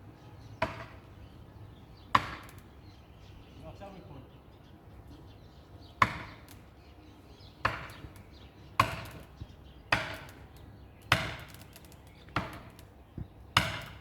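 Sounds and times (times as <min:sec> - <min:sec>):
axe chopping tree trunk: 0:07.6 - 0:08.1, 0:08.8 - 0:09.2, 0:09.9 - 0:10.4, 0:11.1 - 0:11.6, 0:12.4 - 0:12.8, 0:13.6 - 0:14.0.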